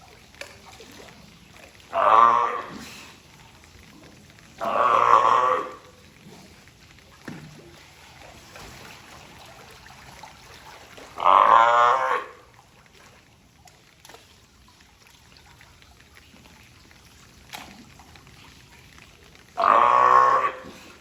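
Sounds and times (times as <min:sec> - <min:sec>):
sea lion bellowing call: 0:01.9 - 0:03.0, 0:04.6 - 0:05.9, 0:11.2 - 0:12.5, 0:19.6 - 0:20.8.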